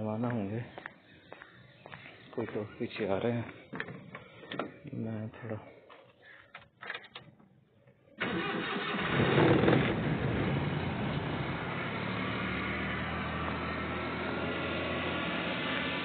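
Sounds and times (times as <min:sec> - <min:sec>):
car engine starting and idling: 0:08.2 - 0:16.0.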